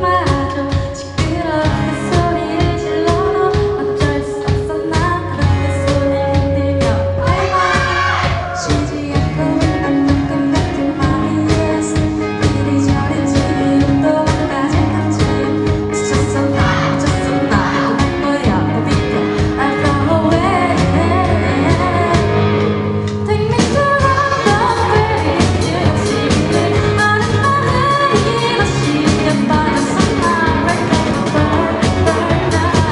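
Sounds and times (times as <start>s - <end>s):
person singing: 0.0s - 22.5s
bass and guitar: 0.0s - 32.9s
drum beat: 7.2s - 9.1s, 15.3s - 18.4s.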